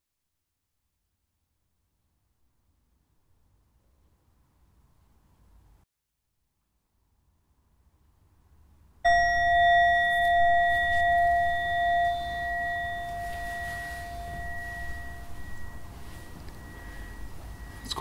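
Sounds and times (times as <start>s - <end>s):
meditation bell ringing: 9.1s - 18.0s.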